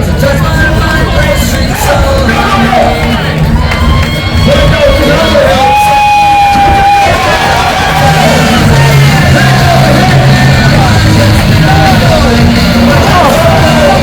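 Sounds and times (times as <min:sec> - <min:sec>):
music with held bass line: 0:00.0 - 0:14.0
person singing or shouting: 0:04.6 - 0:14.0.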